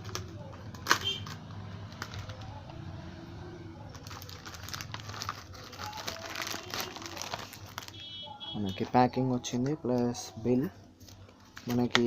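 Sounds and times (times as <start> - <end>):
packaging crinkling and rustling: 0.0 - 2.9, 3.9 - 8.1, 11.0 - 12.0.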